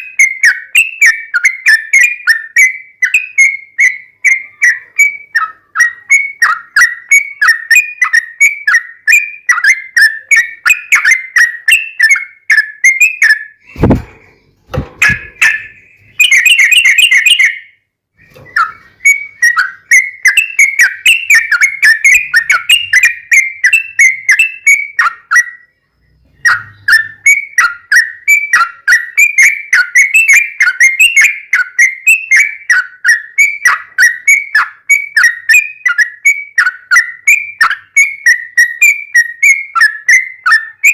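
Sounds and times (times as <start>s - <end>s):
bulbul singing chirping notes: 0.0s - 40.9s
low thumps: 13.6s - 15.7s.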